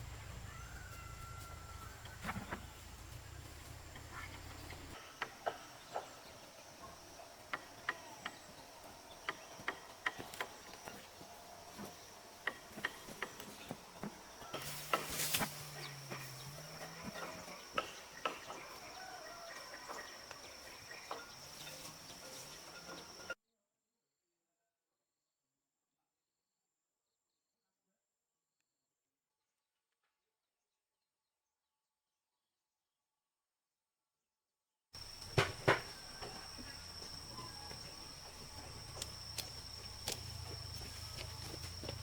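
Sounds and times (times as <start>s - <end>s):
high-pitched insect drone: 35.0s - 42.0s.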